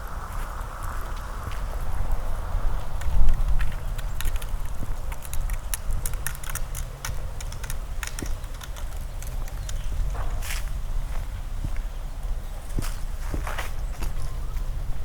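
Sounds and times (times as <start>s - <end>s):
footsteps with crackles underfoot: 0.0s - 15.0s
steady low rumble: 0.0s - 15.0s.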